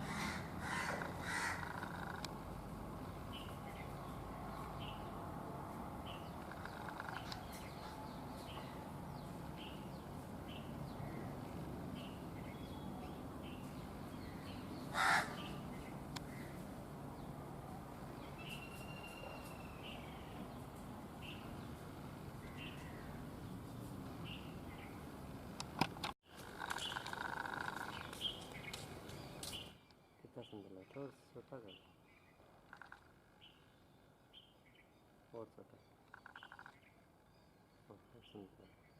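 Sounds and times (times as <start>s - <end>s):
harsh bird caw: 0.0s - 2.3s, 6.5s - 7.6s, 14.9s - 15.6s
small bird chirping: 18.2s - 20.5s, 26.6s - 38.9s.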